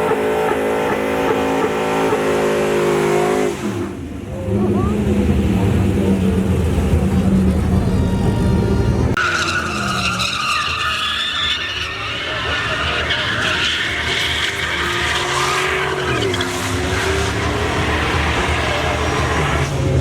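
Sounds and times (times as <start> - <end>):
truck engine revving: 0.0 - 20.0
tyres squealing: 8.0 - 19.7.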